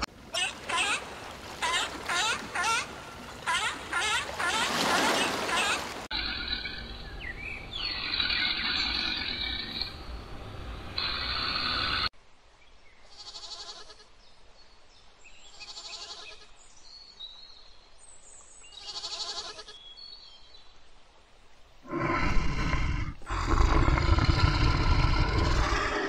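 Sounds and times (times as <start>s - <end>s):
goat kid bleating: 13.1s - 14.1s, 15.7s - 16.5s, 18.8s - 19.8s.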